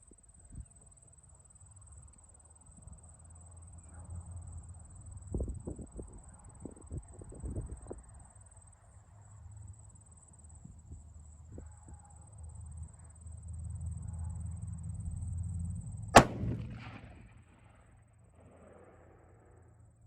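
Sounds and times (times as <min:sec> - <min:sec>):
low rumble: 0:14.7 - 0:17.8
rifle shot with echo: 0:16.1 - 0:19.6.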